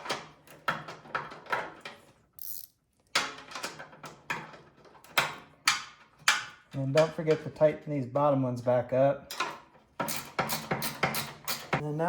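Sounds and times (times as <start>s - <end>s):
ratchet wrench clicking: 2.4s - 2.7s, 10.1s - 11.7s.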